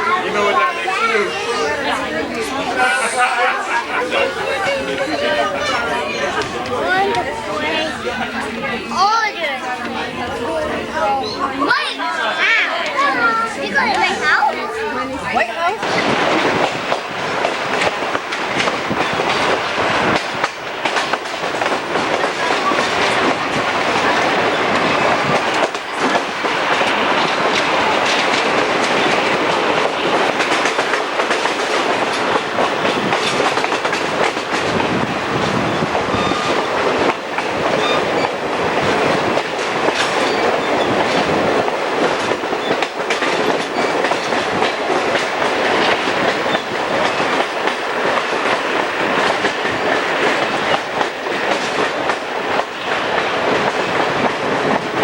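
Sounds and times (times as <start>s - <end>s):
train rumbling and rattling: 0.0s - 55.0s
wheels clicking over rail joints: 12.7s - 55.0s.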